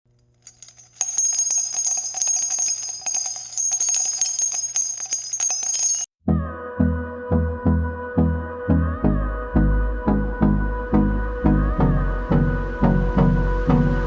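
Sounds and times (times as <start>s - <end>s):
jingling bells: 0.2s - 6.1s.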